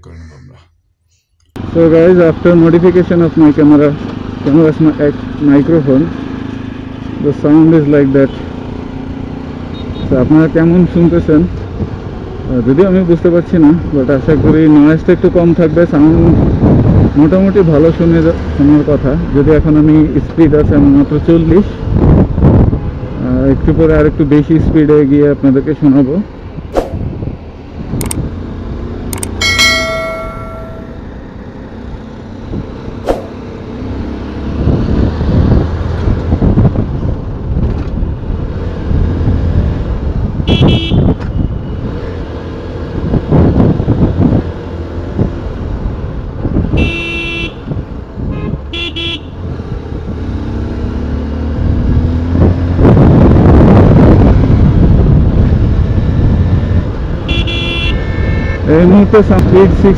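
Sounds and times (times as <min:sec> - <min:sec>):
motorcycle engine and road noise: 0:01.4 - 0:59.9
wind buffeting: 0:26.4 - 0:28.5
short vehicle horn toots: 0:40.5 - 0:41.2, 0:46.8 - 0:47.6, 0:57.3 - 0:58.6.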